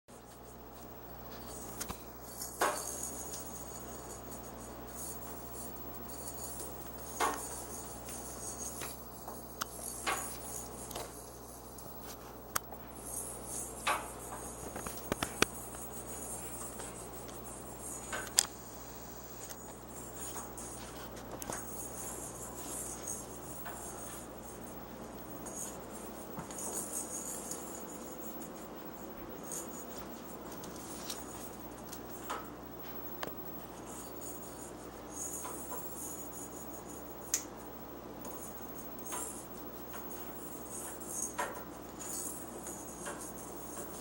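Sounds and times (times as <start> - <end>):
steady hiss: 0.4 - 35.5.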